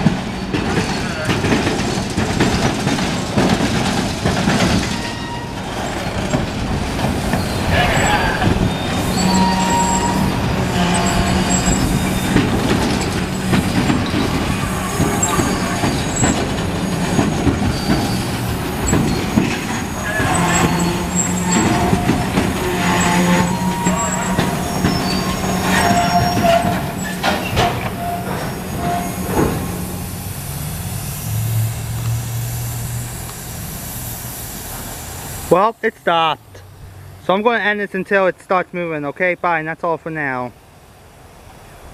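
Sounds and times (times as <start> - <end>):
train wheels clattering on rails: 0.0 - 35.5
high wheel squeals: 0.2 - 2.8, 4.6 - 34.7.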